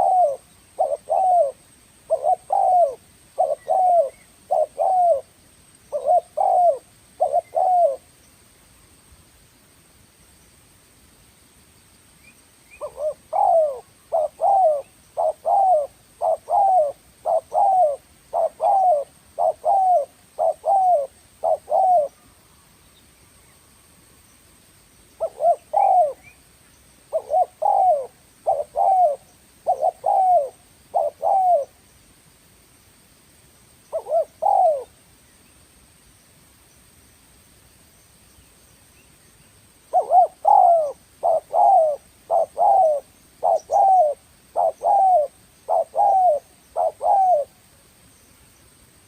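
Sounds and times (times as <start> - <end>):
dove cooing: 0.0 - 5.3, 5.9 - 8.1, 12.7 - 22.3, 25.2 - 26.4, 27.1 - 31.8, 33.9 - 35.0, 39.9 - 47.6.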